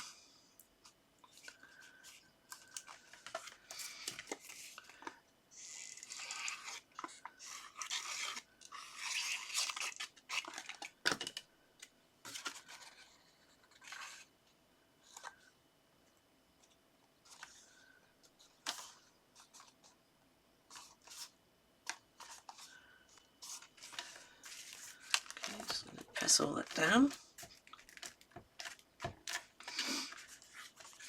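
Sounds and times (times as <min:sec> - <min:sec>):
paper and card rustling: 0:12.2 - 0:14.3, 0:20.7 - 0:31.0.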